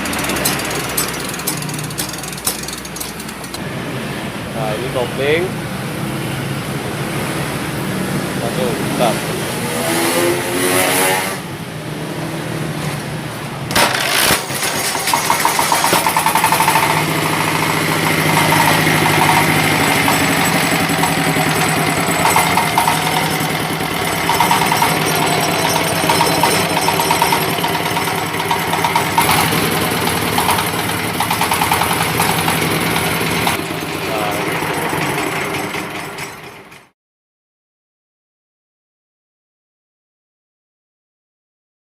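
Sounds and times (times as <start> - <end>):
small diesel engine knocking: 0.0 - 3.6, 13.8 - 36.9
plastic shredder: 13.7 - 36.2.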